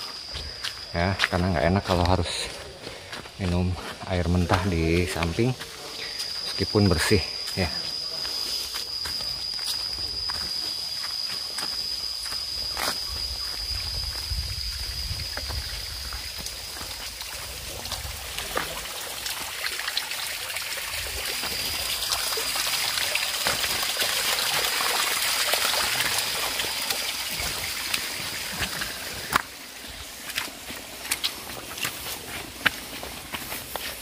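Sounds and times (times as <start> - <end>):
high-pitched whine: 0.0 - 18.8, 20.4 - 34.0
stream flowing and trickling: 11.2 - 34.0.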